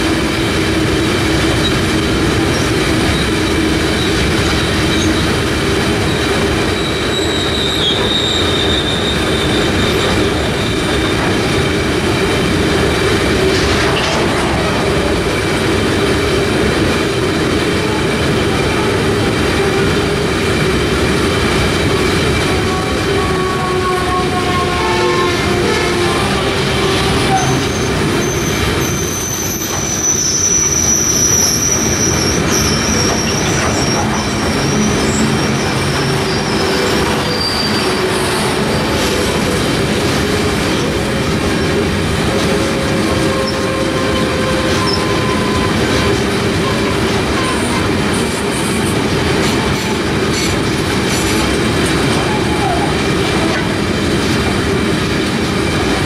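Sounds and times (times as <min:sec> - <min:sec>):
hopper wagons rolling on rails: 0:00.0 - 0:24.0, 0:24.6 - 0:56.0
high wheel squeal: 0:02.5 - 0:11.3, 0:24.6 - 0:39.6, 0:42.4 - 0:48.0.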